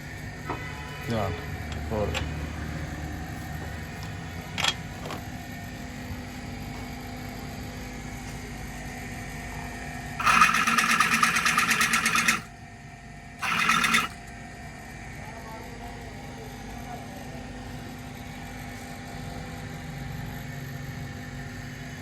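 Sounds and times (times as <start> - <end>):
small motorised tool rattling: 10.2 - 12.5, 13.4 - 14.2.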